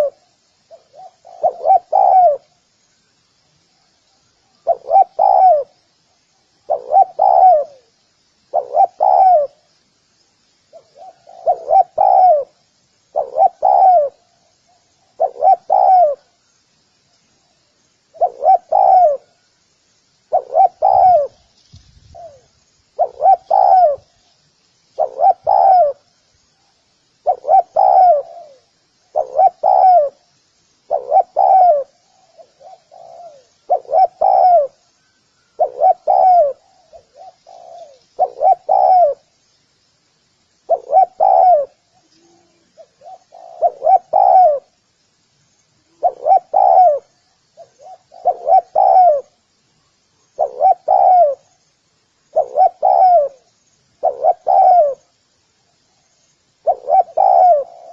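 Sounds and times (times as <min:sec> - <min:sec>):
dove cooing: 0:00.0 - 0:02.6, 0:04.5 - 0:05.8, 0:06.6 - 0:09.7, 0:10.7 - 0:16.3, 0:18.1 - 0:19.4, 0:20.3 - 0:21.5, 0:22.1 - 0:24.2, 0:25.0 - 0:26.1, 0:27.2 - 0:30.3, 0:30.9 - 0:39.3, 0:40.7 - 0:44.8, 0:45.8 - 0:49.4, 0:50.3 - 0:51.5, 0:52.3 - 0:55.1, 0:56.6 - 0:57.9.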